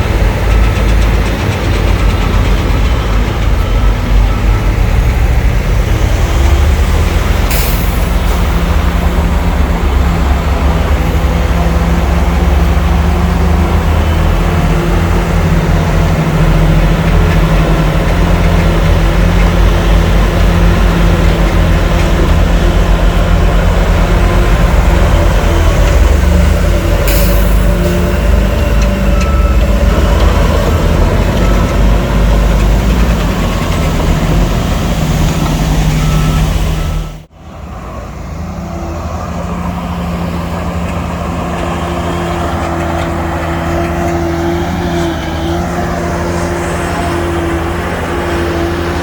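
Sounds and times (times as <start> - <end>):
diesel machinery engines: 0.0 - 49.0
steady diesel engine: 0.0 - 49.0
reversing beeper: 23.4 - 37.3.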